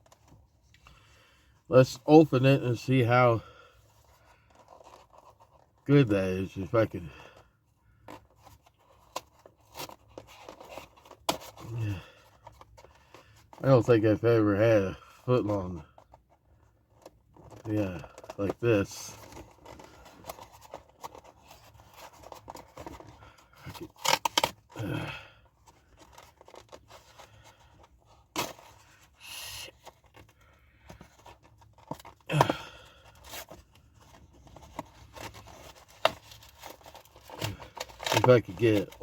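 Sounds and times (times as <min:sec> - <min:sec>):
food packaging tearing and scraping: 0:17.4 - 0:39.0.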